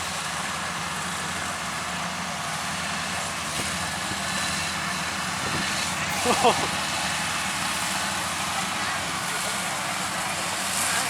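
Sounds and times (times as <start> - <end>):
combine harvester diesel engine hum: 0.0 - 11.0
cutting and threshing machinery hiss: 0.0 - 11.0.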